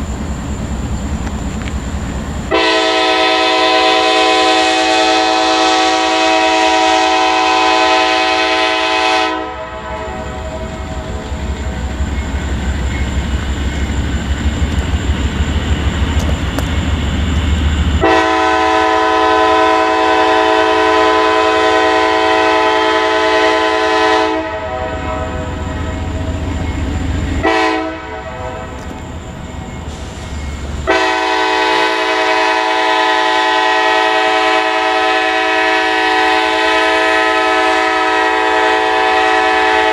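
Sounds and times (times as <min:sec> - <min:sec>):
train rumbling by: 0:00.0 - 0:39.9
locomotive air horn blasts: 0:02.5 - 0:11.2, 0:18.0 - 0:26.1, 0:27.3 - 0:28.9, 0:30.8 - 0:39.9.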